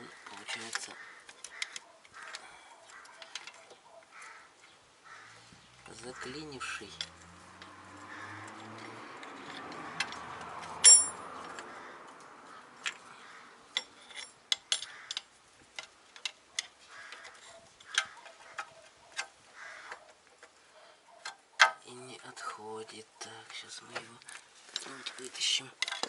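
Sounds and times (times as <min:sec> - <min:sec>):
ringing metal clink: 0:10.8 - 0:11.2
metal clicks and taps: 0:13.7 - 0:20.6.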